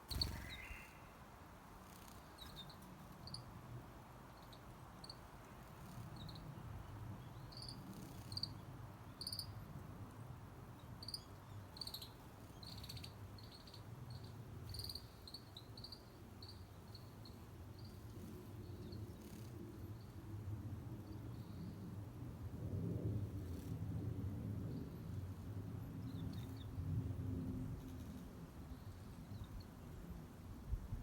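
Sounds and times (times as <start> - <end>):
songbirds chipping: 0.0 - 9.7, 10.8 - 20.2.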